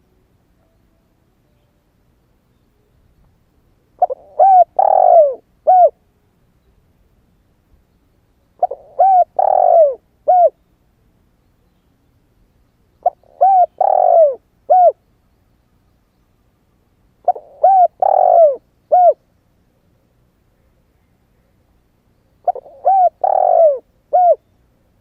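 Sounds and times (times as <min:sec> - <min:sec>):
dove cooing: 0:04.0 - 0:06.0, 0:08.6 - 0:10.6, 0:13.0 - 0:15.0, 0:17.2 - 0:19.2, 0:22.4 - 0:24.4.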